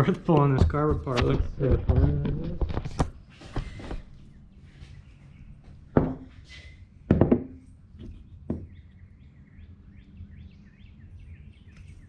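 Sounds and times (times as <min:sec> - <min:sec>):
small birds chirping: 0:03.1 - 0:12.0
loud knocks: 0:07.1 - 0:07.6.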